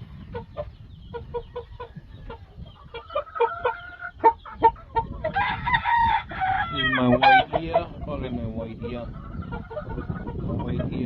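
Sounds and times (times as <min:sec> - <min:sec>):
chickens clucking: 0:00.0 - 0:11.0
rooster crowing: 0:05.3 - 0:07.5.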